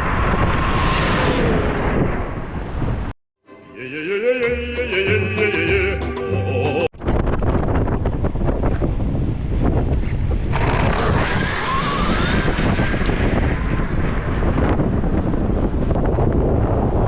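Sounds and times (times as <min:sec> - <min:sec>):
wind buffeting microphone: 0:06.9 - 0:17.0.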